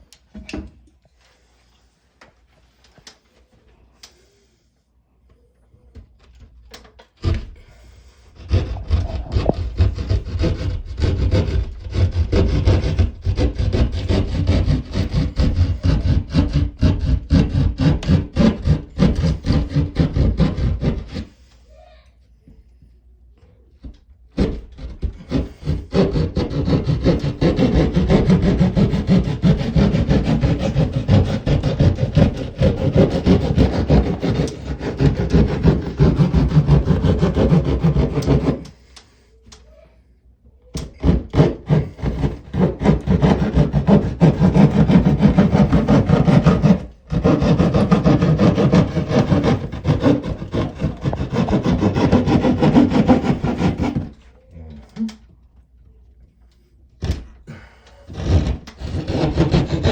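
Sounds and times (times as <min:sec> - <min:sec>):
hand saw cutting sheetrock: 0:07.2 - 0:21.5, 0:24.4 - 0:39.0, 0:40.8 - 0:54.3, 0:57.5 - 0:59.9.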